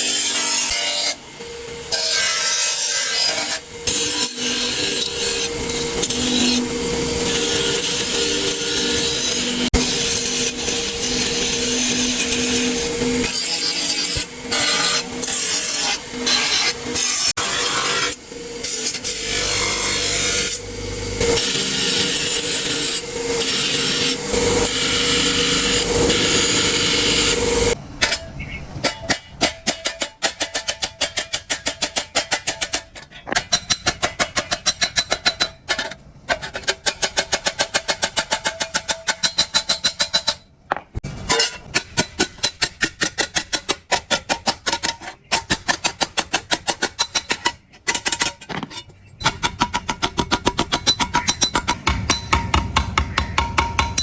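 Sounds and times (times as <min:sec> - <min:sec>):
rhythmic hand filing strokes: 0:00.0 - 0:20.6
power tool whining: 0:00.0 - 0:27.8.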